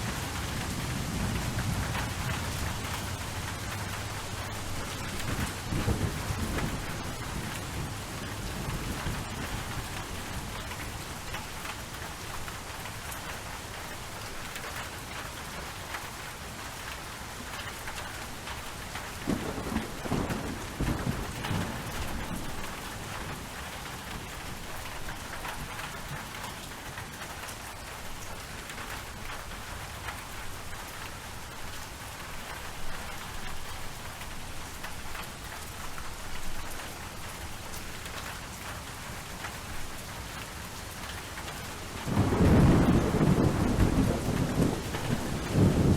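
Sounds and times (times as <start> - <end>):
thunder rumbling: 0.0 - 10.6, 19.3 - 23.6, 41.9 - 45.9
steady rain falling: 0.0 - 45.9.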